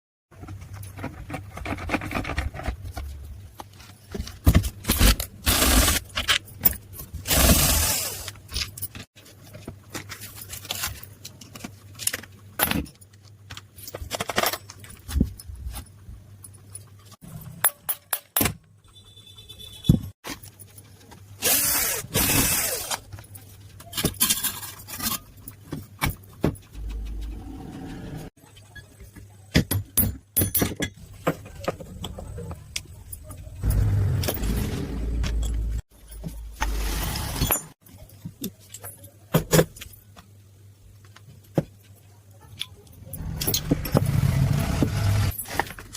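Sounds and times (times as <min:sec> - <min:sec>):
metal tools clinking and scraping: 0:21.8 - 0:26.7.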